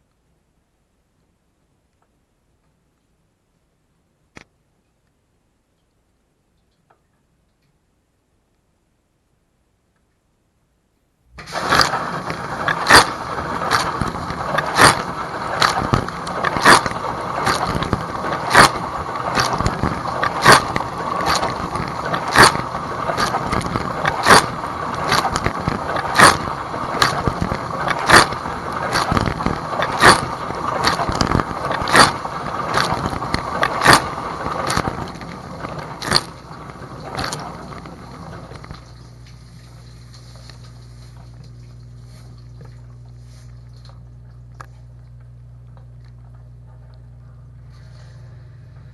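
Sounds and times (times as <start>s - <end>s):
dishwasher water spraying: 11.4s - 43.4s.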